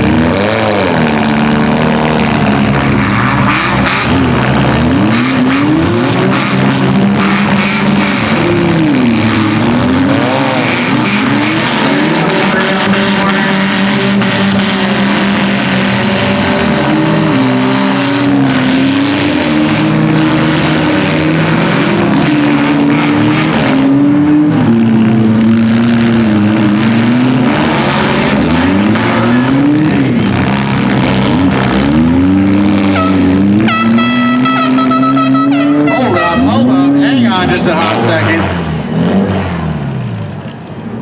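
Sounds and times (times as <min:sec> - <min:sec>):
car engines revving: 0:00.0 - 0:41.0.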